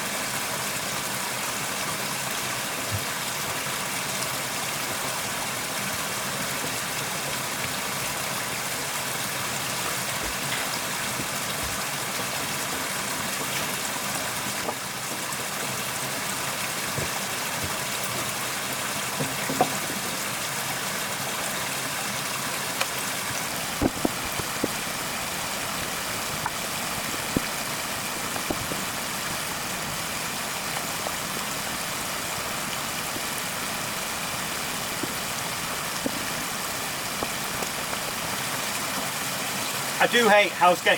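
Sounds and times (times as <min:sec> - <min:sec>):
flowing water rushing: 0:00.0 - 0:40.9
sharp clicks and knocks: 0:23.7 - 0:25.1, 0:25.8 - 0:29.6.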